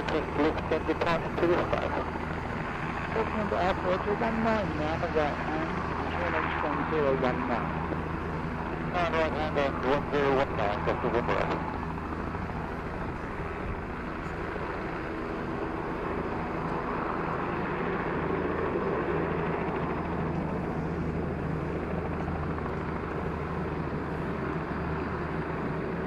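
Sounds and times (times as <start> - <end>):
helicopter engine and rotors: 0.0 - 26.0.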